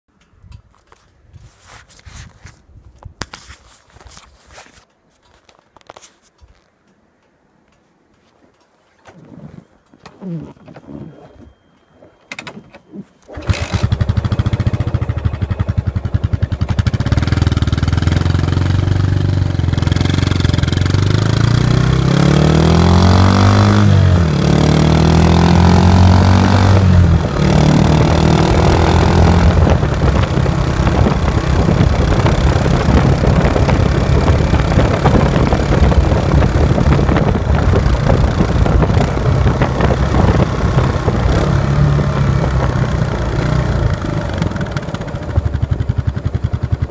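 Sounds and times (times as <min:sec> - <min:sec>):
single-cylinder motorcycle engine: 0:12.3 - 0:46.9
engine accelerating: 0:13.3 - 0:46.9.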